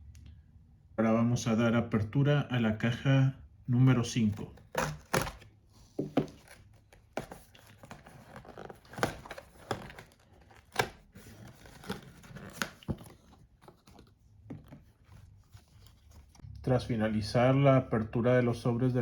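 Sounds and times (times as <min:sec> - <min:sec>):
paper rustling: 0:03.9 - 0:16.4
sticker packets tearing: 0:04.1 - 0:05.4, 0:06.4 - 0:13.0.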